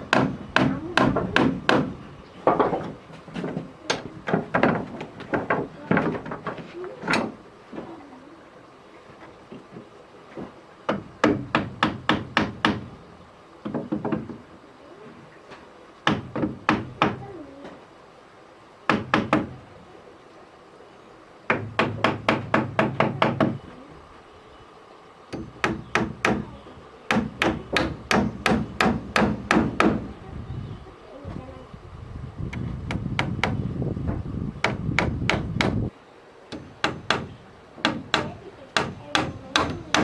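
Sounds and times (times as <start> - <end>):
hammer striking wood: 0.0 - 6.5, 10.9 - 12.9, 16.0 - 17.2, 18.9 - 19.6, 21.5 - 23.6, 25.3 - 30.1, 32.9 - 33.6, 34.6 - 35.9, 36.5 - 40.0.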